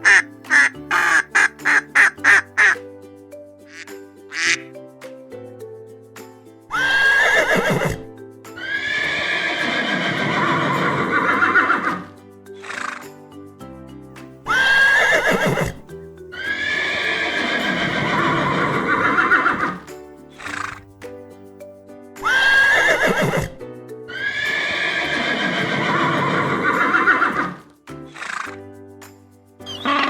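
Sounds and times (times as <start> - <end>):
background music: 0.0 - 30.0
horse whinnying: 6.7 - 12.1, 14.5 - 19.8, 22.2 - 27.6.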